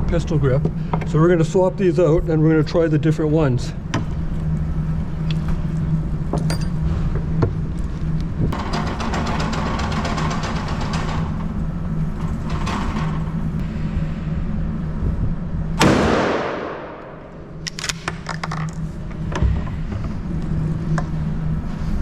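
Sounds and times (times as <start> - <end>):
low hum: 0.0 - 22.0
gunshot echoing: 15.8 - 17.2
gun handling clicks and knocks: 17.6 - 18.8.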